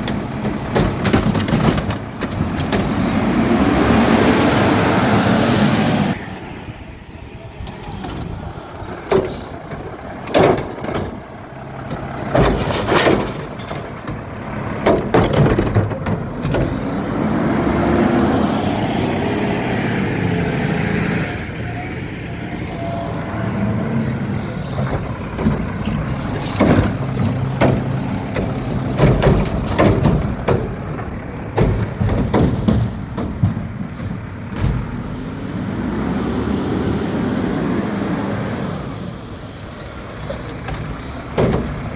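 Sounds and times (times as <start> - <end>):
metal clanks and bangs: 0.0 - 3.3, 7.7 - 17.1, 24.3 - 35.2, 40.2 - 41.9
diesel engine revving: 0.0 - 41.9.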